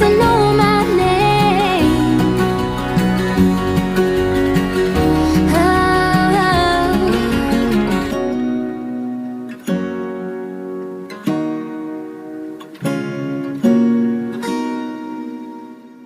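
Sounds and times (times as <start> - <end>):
acoustic guitar chords ringing: 0.0 - 16.0.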